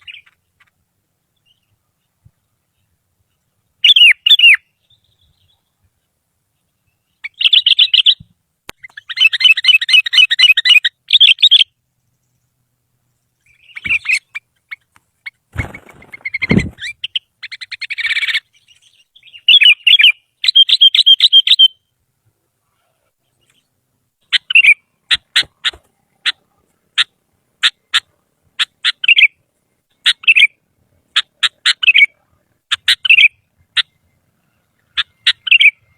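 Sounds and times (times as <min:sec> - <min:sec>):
bulbul chirping: 0:23.3 - 0:35.9.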